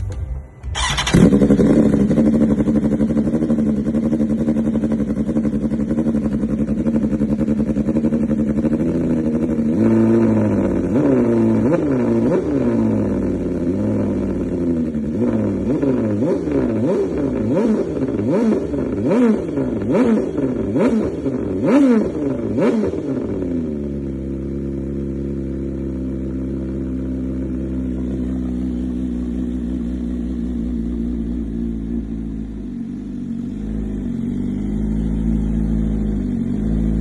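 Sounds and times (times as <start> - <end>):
motorcycle engine revving: 0.0 - 37.0
motorcycle engine starting: 0.0 - 37.0
motorcycle engine idling: 0.1 - 37.0.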